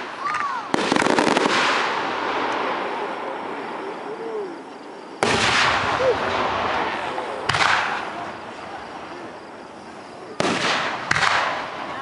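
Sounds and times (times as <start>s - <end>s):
firework echo: 0.0s - 12.0s
firework boom: 5.2s - 8.4s.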